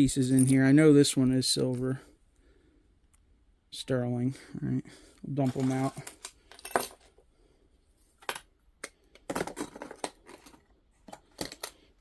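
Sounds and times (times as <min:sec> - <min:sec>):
coins and jewelry clinking on table: 0:06.5 - 0:07.1.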